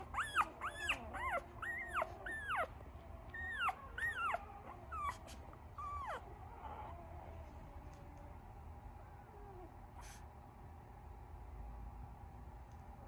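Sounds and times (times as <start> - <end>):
puppies whining and whimpering: 0.0 - 7.9.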